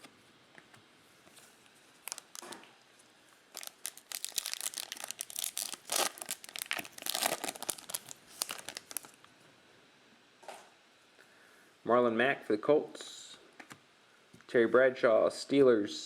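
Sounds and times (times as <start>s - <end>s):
plastic foil wrapper crinkling: 2.0s - 2.7s, 3.5s - 9.3s.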